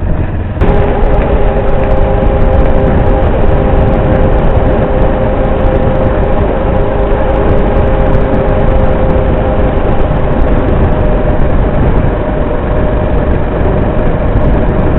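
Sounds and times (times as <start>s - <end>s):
motorcycle engine running: 0.6s - 14.9s.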